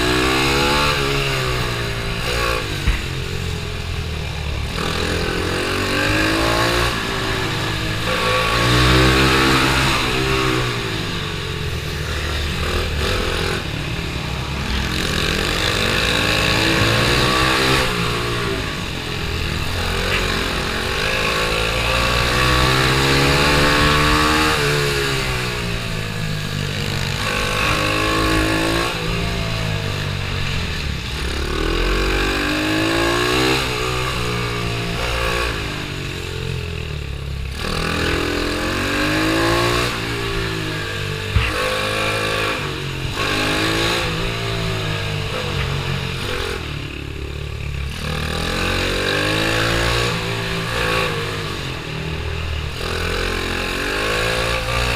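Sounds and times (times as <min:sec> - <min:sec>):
pit bike engine revving: 0:00.0 - 0:54.9.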